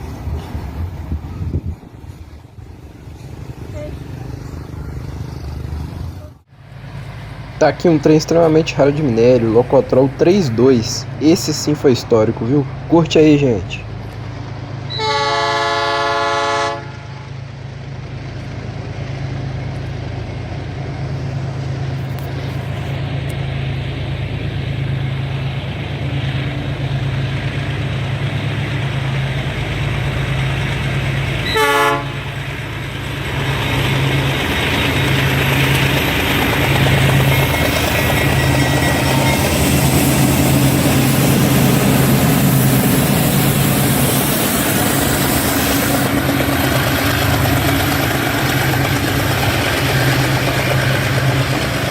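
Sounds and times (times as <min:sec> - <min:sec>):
locomotive engines droning: 0:00.0 - 0:51.9
passing train: 0:00.0 - 0:51.9
locomotive horn blast: 0:14.9 - 0:17.4, 0:31.4 - 0:32.4.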